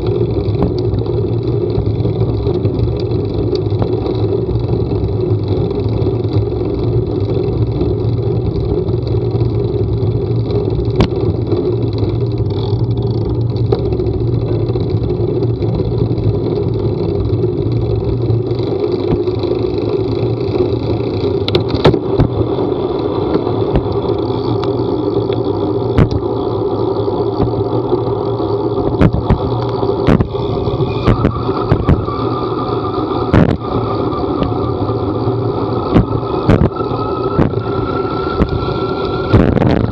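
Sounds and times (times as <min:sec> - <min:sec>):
moving vehicle rumble: 0:00.0 - 0:39.9
sharp clicks and knocks: 0:00.4 - 0:01.4, 0:02.4 - 0:04.1, 0:10.5 - 0:15.0, 0:21.4 - 0:22.4, 0:23.3 - 0:26.3, 0:27.3 - 0:27.8, 0:28.8 - 0:32.1, 0:33.3 - 0:33.7, 0:35.8 - 0:37.6.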